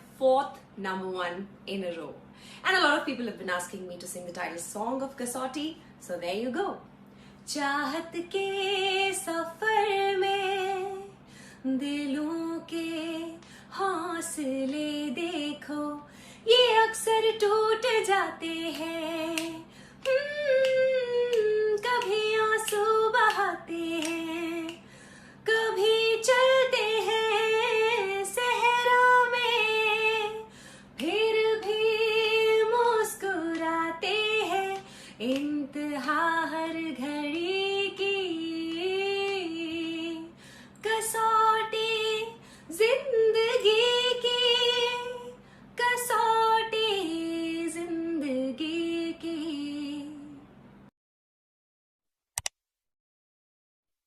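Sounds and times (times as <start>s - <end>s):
faint steady hum: 0.0s - 50.9s
woman singing unaccompanied: 7.5s - 50.4s.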